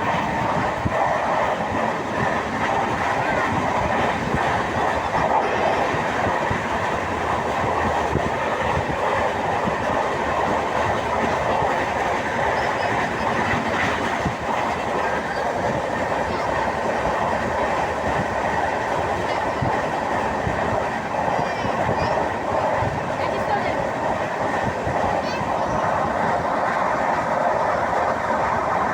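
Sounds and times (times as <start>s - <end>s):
train interior rumble: 0.0s - 28.9s.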